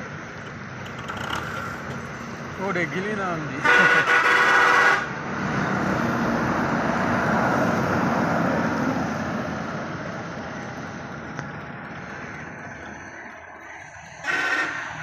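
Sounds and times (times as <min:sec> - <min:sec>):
tractor engine under load: 0:00.0 - 0:04.0.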